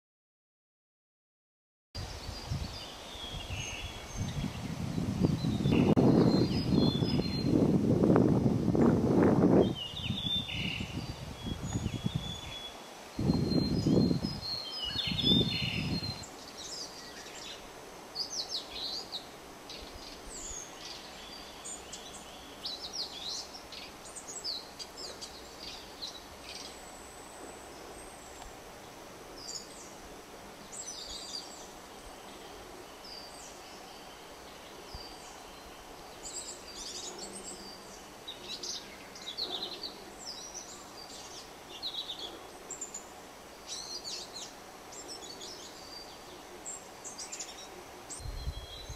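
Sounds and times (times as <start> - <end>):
bird singing high chirps: 2.2 - 7.6, 9.6 - 17.6, 43.7 - 48.9.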